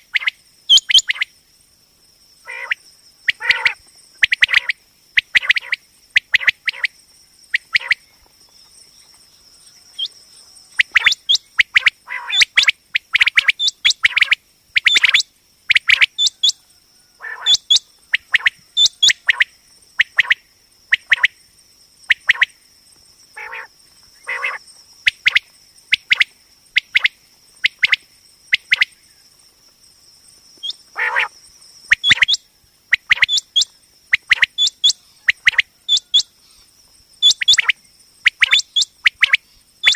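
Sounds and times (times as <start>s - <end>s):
quail calling: 2.4s - 6.9s, 7.6s - 8.0s, 10.8s - 16.6s, 17.2s - 19.4s, 23.4s - 25.4s, 30.6s - 31.3s, 31.9s - 36.4s, 38.3s - 39.9s.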